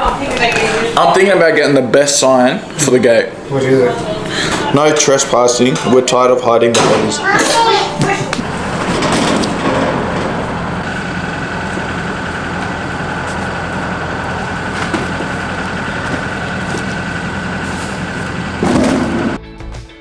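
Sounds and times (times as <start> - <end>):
engine humming: 0.0 - 19.4
high whine: 6.7 - 19.4.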